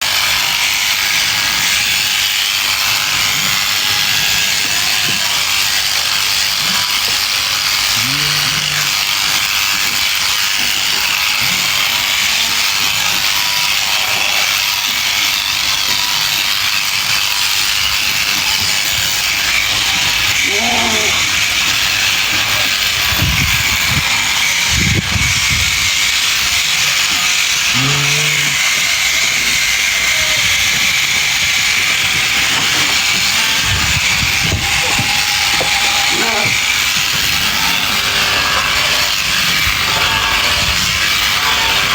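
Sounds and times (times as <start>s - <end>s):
electric sheep shears buzzing: 0.0s - 41.9s
sheep bleating: 6.6s - 10.0s, 19.3s - 22.8s, 26.8s - 30.6s, 32.2s - 41.9s.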